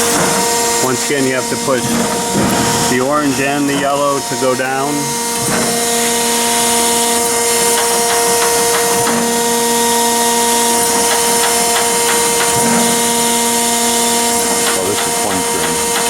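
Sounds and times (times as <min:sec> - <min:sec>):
surface grinder whine: 0:00.0 - 0:16.0
lower hum: 0:00.8 - 0:06.4.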